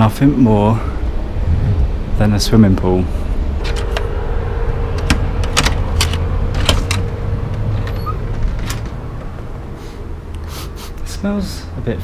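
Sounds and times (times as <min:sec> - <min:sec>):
car road rumble: 0:00.0 - 0:12.0
sharp clicks and rattles: 0:05.0 - 0:09.6.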